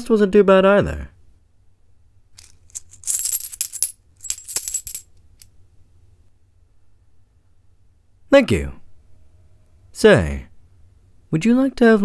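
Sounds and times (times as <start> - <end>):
coins clinking: 2.4 - 5.1.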